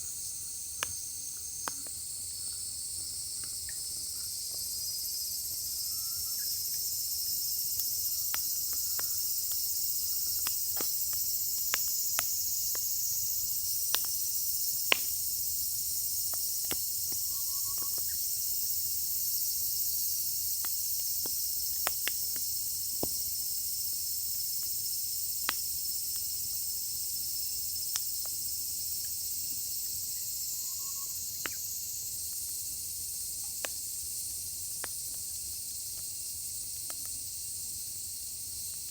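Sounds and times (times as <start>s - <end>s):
insects chirping: 0.0s - 38.9s
firewood crackling and popping: 0.5s - 4.7s, 7.6s - 18.8s, 20.5s - 26.7s, 27.8s - 28.4s, 32.2s - 36.2s, 36.8s - 37.2s.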